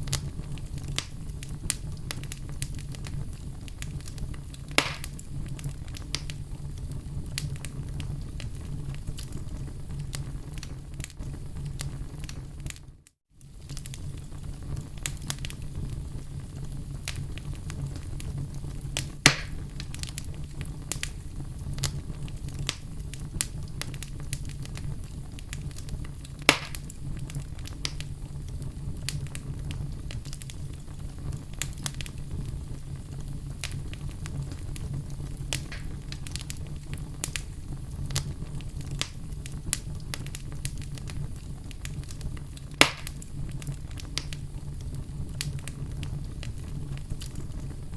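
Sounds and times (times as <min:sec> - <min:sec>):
fire crackling: 0:00.0 - 0:47.9
loud fire pops: 0:00.0 - 0:47.9.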